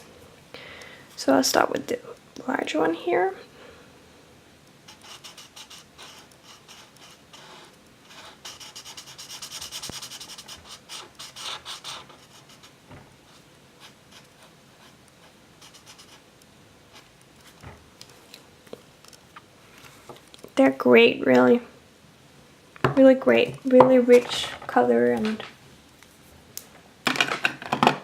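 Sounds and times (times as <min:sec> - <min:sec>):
marker rubbing on paper: 0:04.9 - 0:16.2.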